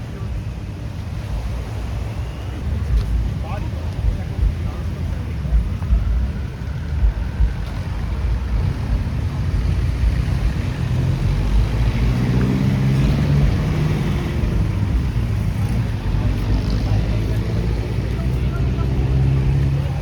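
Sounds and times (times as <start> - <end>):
deep rumble: 5.4 - 20.0.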